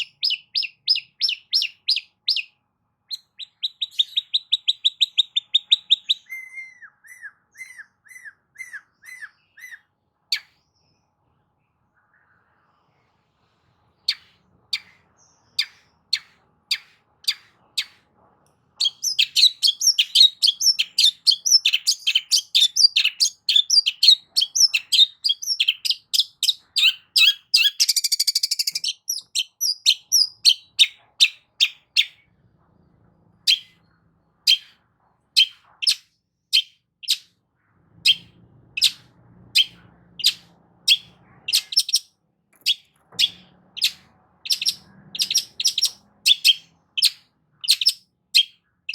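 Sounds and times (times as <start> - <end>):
bird fast chattering: 18.8 - 32.2, 39.6 - 48.6.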